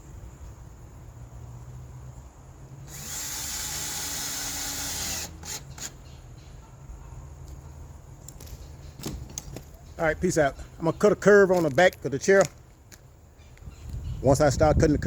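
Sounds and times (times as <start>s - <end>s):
power drill running: 2.9s - 6.0s.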